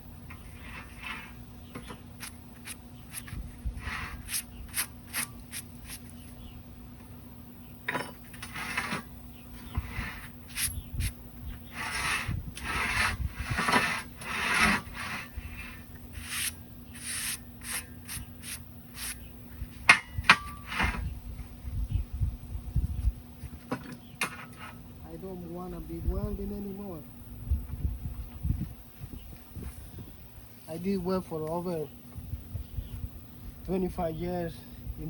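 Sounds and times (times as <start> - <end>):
hand scraping on metal: 0.2 - 6.4, 8.0 - 21.1, 24.2 - 24.9.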